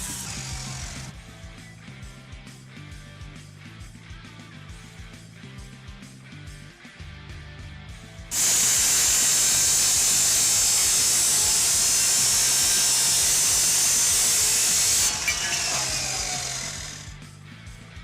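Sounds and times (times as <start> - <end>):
cut-off saw grinding metal: 0.0 - 1.2, 8.3 - 17.2
saw disc winding down whine: 0.0 - 1.2, 8.3 - 17.2
guitar background music: 0.0 - 18.0.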